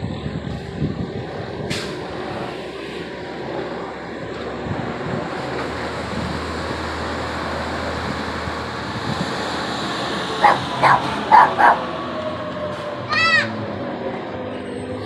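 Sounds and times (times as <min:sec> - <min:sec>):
engine drone: 0:00.0 - 0:15.0
dog barking: 0:10.4 - 0:11.9.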